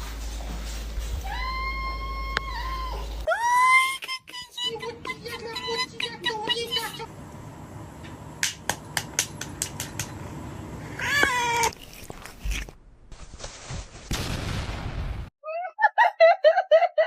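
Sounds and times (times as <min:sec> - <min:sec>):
cat meowing: 0:10.9 - 0:11.8.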